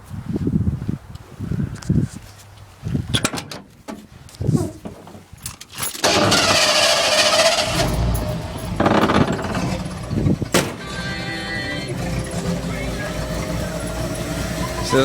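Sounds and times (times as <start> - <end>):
truck engine starting and running: 5.1 - 15.0.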